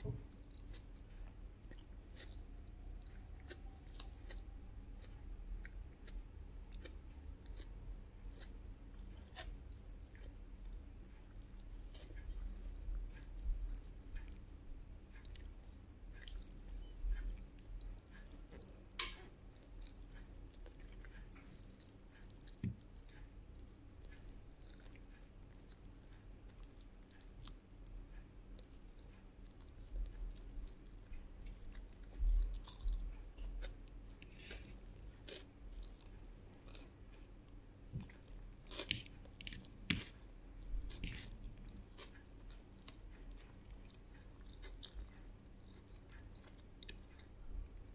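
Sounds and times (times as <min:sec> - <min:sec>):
close chewing and mouth sounds: 0:00.0 - 0:47.9.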